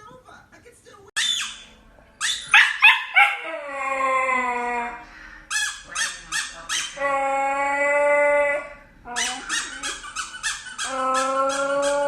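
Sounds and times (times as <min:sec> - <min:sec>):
dog yipping: 0:01.2 - 0:03.8, 0:09.1 - 0:12.0
dog howling: 0:02.5 - 0:05.0, 0:06.8 - 0:09.5, 0:10.8 - 0:12.0.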